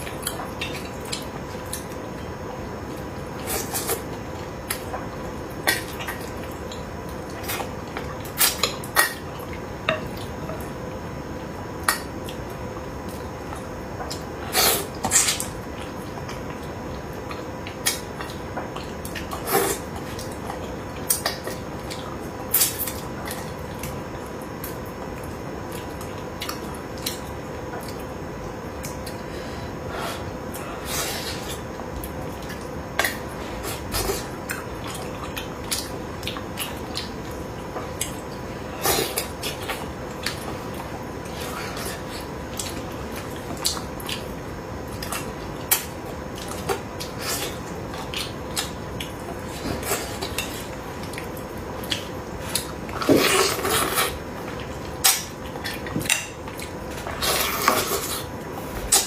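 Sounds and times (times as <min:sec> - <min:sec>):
faint hum: 0:00.0 - 0:59.0
wet eating sounds: 0:28.7 - 0:59.0.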